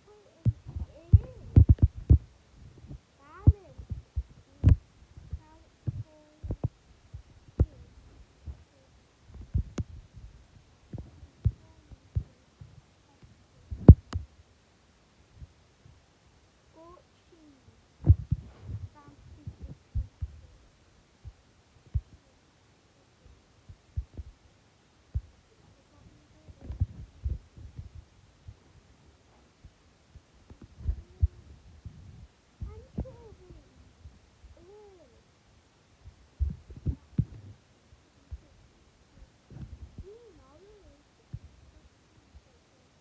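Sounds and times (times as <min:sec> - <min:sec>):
low thumps and knocks: 0:00.5 - 0:07.9, 0:18.0 - 0:20.4.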